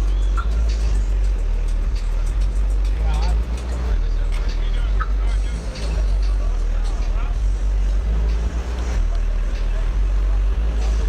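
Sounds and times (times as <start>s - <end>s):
deep subwoofer bass: 0.0s - 11.0s.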